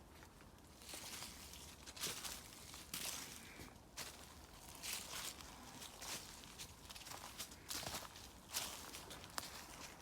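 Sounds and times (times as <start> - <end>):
footsteps on forest floor: 4.0 - 10.0.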